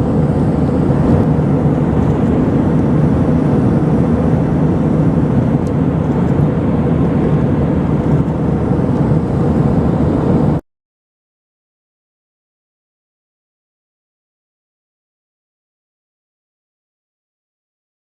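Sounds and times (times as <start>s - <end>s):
jet airliner engines rumbling: 0.0s - 10.6s
rushing air: 0.0s - 10.6s.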